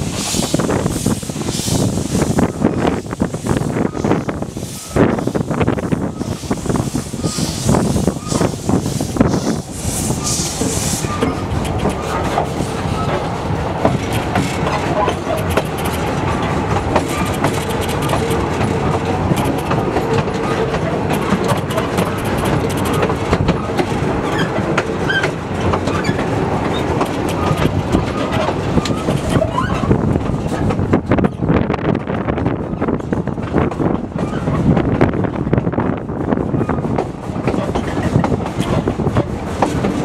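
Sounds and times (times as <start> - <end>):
railway carriage rumbling: 0.0 - 40.0
wheels clicking over rail joints: 10.5 - 40.0.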